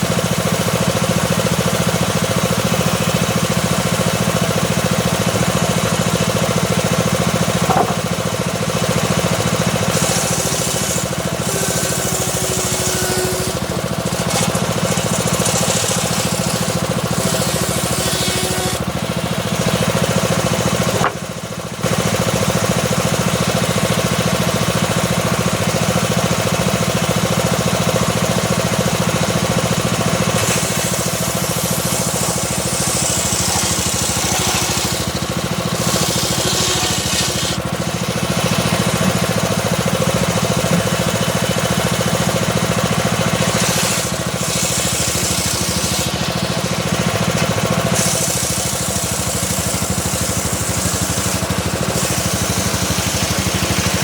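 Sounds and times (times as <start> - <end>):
engine droning: 0.0 - 54.0
saw blade hissing through wood: 9.7 - 19.8, 29.6 - 39.5, 43.3 - 47.1, 47.8 - 53.9.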